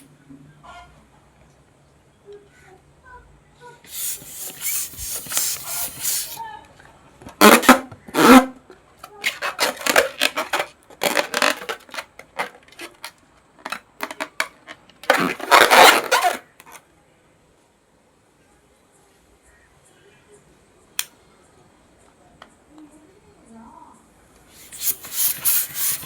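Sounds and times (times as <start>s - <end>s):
balloons popping: 3.9s - 6.4s, 7.4s - 8.5s, 9.2s - 12.9s, 13.7s - 16.8s, 24.6s - 26.0s.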